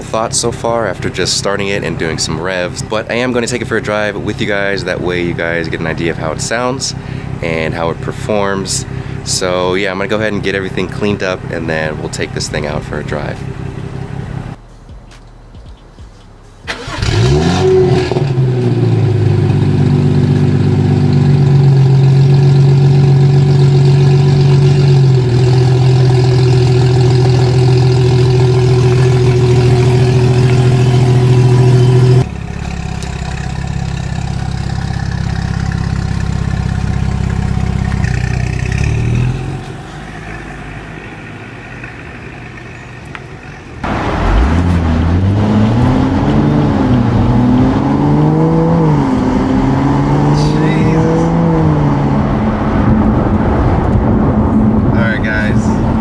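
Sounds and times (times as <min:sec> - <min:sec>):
low steady engine note: 0:00.0 - 0:15.0, 0:18.4 - 0:43.9
car engine starting and idling: 0:00.0 - 0:56.0.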